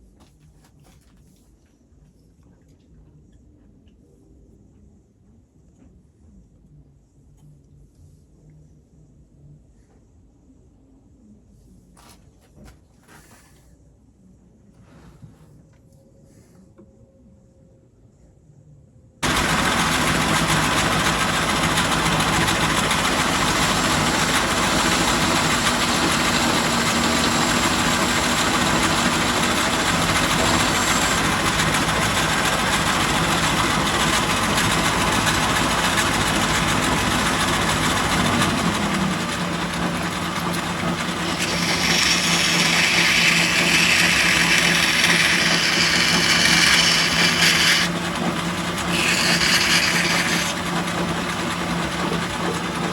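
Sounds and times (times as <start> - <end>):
lathe motor humming: 19.2 - 52.9.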